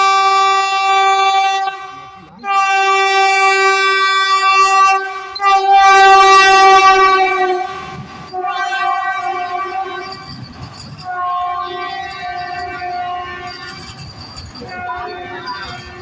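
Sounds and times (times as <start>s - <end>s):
train horn blasts: 0.0s - 10.3s, 11.0s - 14.0s, 14.6s - 16.0s
moving train rumble: 0.0s - 16.0s.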